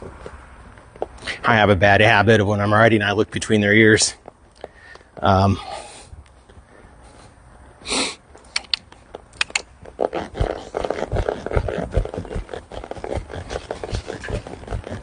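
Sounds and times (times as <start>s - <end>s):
horse blowing: 7.8s - 8.2s, 9.4s - 15.0s
tack creaking and rustling: 8.4s - 15.0s
horse hooves thudding: 9.0s - 15.0s.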